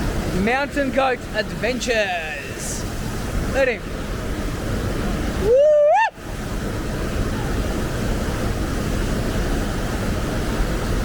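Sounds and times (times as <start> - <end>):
man whooping: 5.4 - 6.2.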